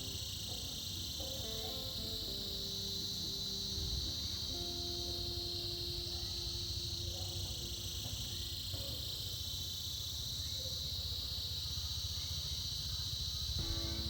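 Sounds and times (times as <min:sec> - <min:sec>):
cicadas buzzing: 0:00.0 - 0:14.0
faint hum: 0:13.6 - 0:14.0.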